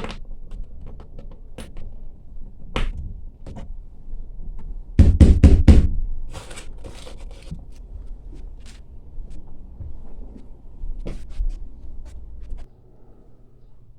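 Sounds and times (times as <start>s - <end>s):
loud knocks: 5.0s - 6.1s
scraping and handling noise: 6.3s - 13.2s.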